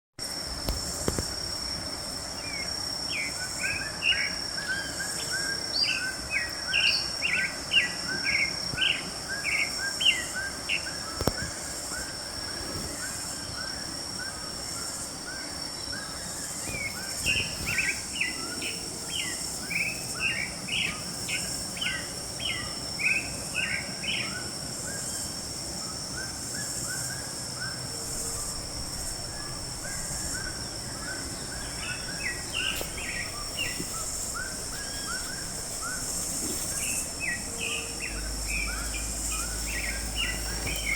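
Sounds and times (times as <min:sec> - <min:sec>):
steady high-pitched hum: 0:00.2 - 0:40.9
bird chirping: 0:12.8 - 0:25.2, 0:26.2 - 0:40.9.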